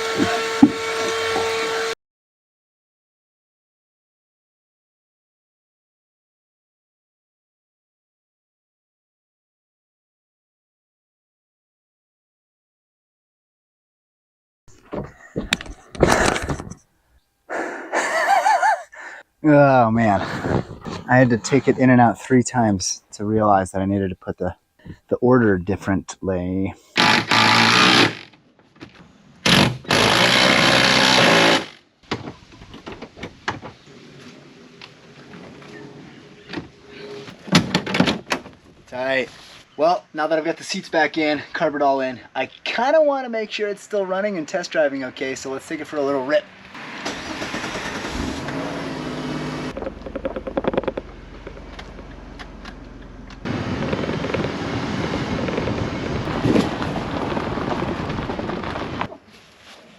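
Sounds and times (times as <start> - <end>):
power tool driving bolts: 0.0 - 1.7, 27.0 - 28.4, 29.4 - 31.8, 47.0 - 52.8
car engine running: 47.1 - 57.3
rattling clicks: 49.7 - 53.4
wind on microphone: 53.4 - 59.2.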